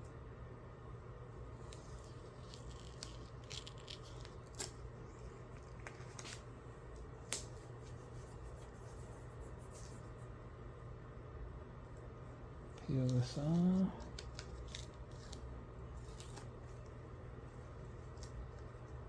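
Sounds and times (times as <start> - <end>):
masking tape crackling: 1.6 - 7.6.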